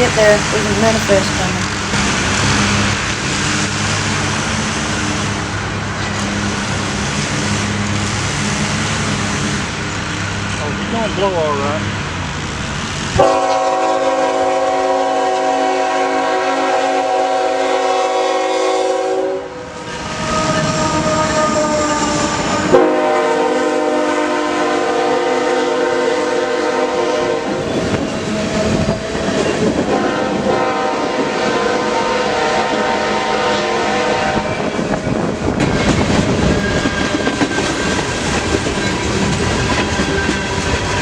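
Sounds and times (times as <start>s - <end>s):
passing train rumble and clatter: 19.5s - 41.0s.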